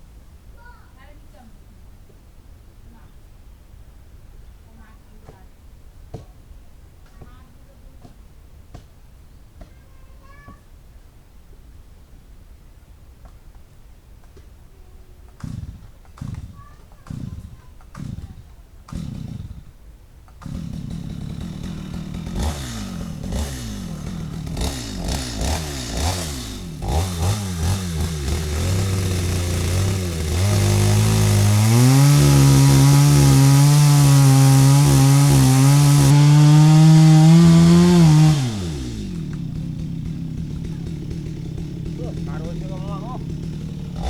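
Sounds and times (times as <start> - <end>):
chainsaw cutting into wood: 15.4 - 44.0.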